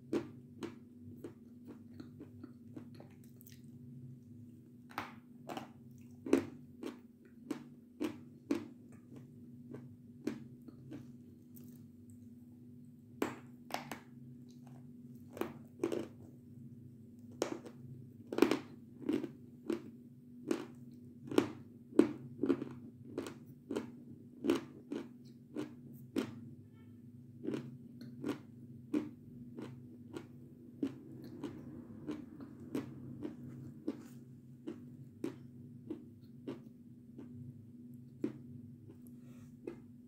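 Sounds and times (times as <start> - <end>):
faint low hum: 0.0 - 40.0
person crunching a snack: 15.3 - 16.2, 17.4 - 19.9, 22.2 - 26.4, 27.4 - 37.5.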